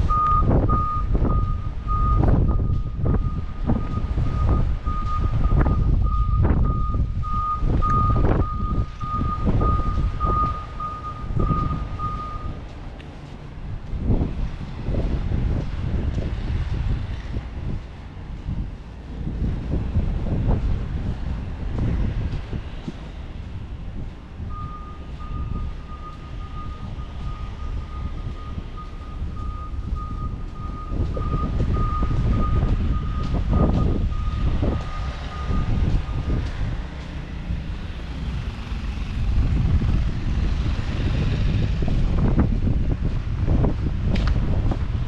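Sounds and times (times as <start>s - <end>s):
wind buffeting microphone: 0.0s - 45.0s
reversing alarm beeping: 0.1s - 12.6s, 24.5s - 36.5s.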